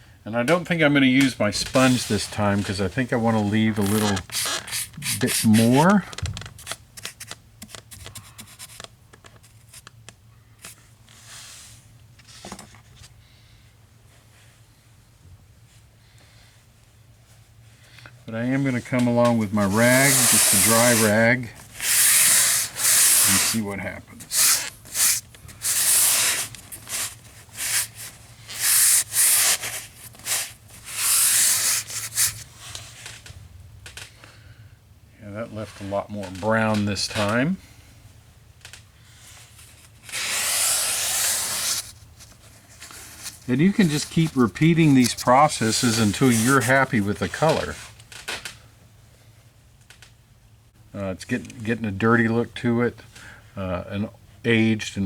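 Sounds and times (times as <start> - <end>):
rag scrubbing a floor: 3.2 - 5.9, 19.3 - 32.4, 40.0 - 42.0, 42.6 - 47.5.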